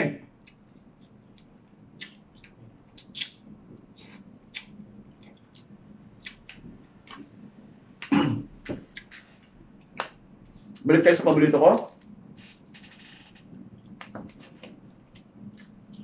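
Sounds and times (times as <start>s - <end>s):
wet chewing clicks and smacks: 0.3s - 7.4s, 13.8s - 16.0s.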